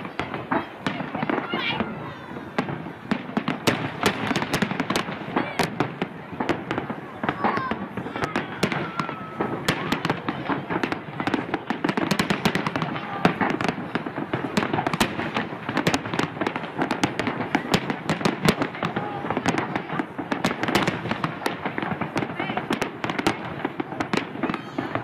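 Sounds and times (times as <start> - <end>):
fireworks crackling and banging: 0.0 - 25.0.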